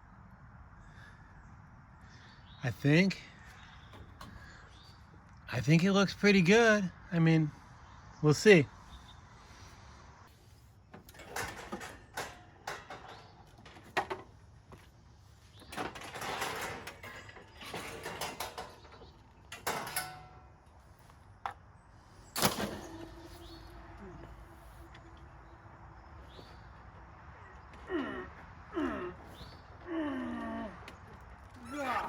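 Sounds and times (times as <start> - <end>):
metallic clunks and rattles: 11.0 - 14.4, 15.5 - 20.7.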